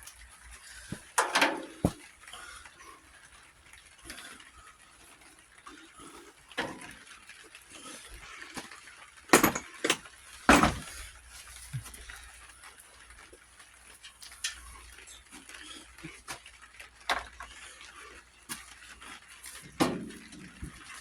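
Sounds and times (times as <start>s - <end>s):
metal parts clanking: 0.9s - 2.0s, 6.6s - 7.0s, 9.3s - 11.1s, 19.5s - 21.0s.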